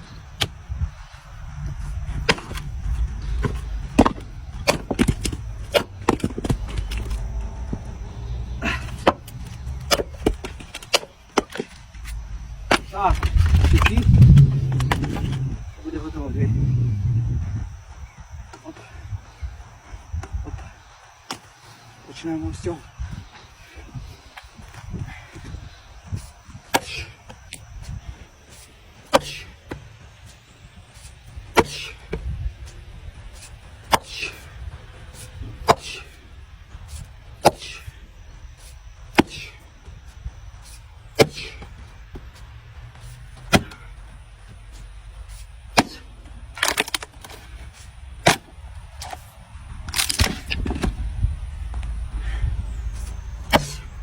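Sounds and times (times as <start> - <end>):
low rumble: 0.0 - 20.9
axe chopping logs: 2.3 - 2.6, 3.4 - 7.2, 8.7 - 14.0, 26.2 - 27.2, 28.5 - 29.8, 31.5 - 32.2, 33.9 - 34.4, 35.2 - 36.1, 37.4 - 37.9, 38.6 - 39.6, 40.6 - 42.3, 43.4 - 43.9, 45.3 - 47.3, 48.2 - 48.6, 53.4 - 53.9.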